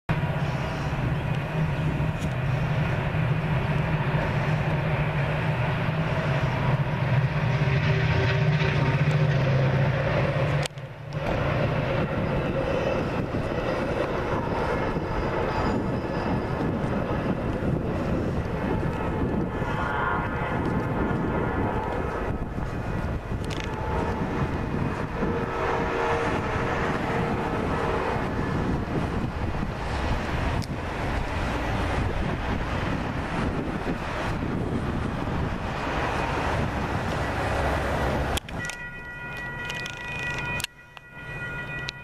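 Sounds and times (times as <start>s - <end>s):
distant diesel locomotive drone: 0.1s - 42.0s.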